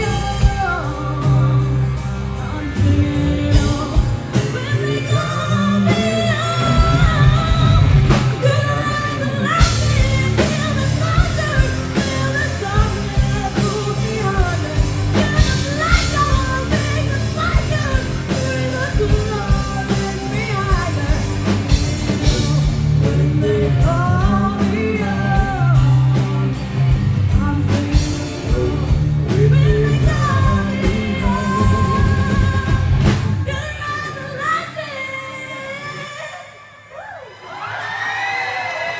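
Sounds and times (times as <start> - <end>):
live rock band: 0.0 - 36.9
lead singer: 0.0 - 38.9
steady drum beat: 2.7 - 8.7, 9.6 - 33.4.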